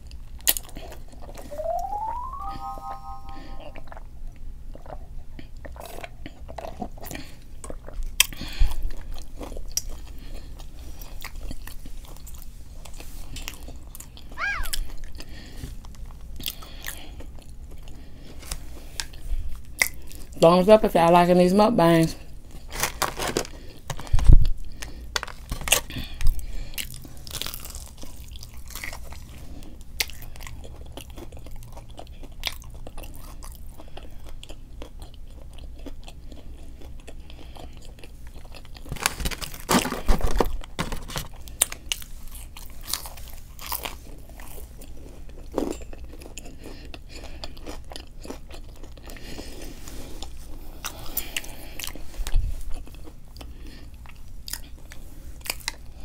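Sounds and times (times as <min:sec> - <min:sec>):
person crunchy chewing: 0:22.6 - 0:55.8.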